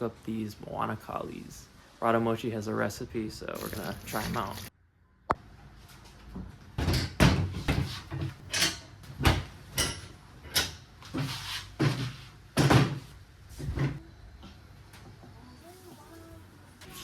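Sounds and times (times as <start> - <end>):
knocks and clunks with thuds: 11.8 - 14.0.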